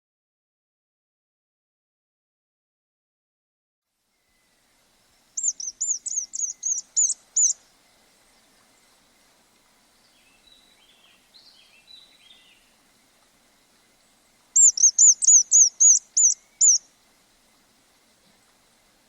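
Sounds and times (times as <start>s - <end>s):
songbird singing: 4.1s - 19.0s.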